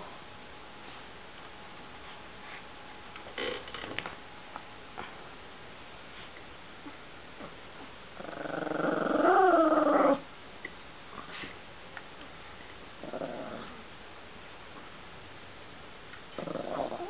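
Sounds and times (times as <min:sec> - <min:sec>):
small dog growling: 0:08.2 - 0:10.3, 0:13.0 - 0:13.9, 0:16.3 - 0:17.0.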